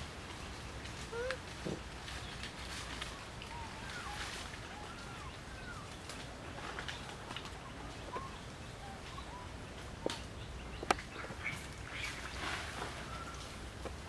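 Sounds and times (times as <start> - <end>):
whistling bird calls: 3.4 - 6.1, 7.6 - 9.6, 12.9 - 13.6.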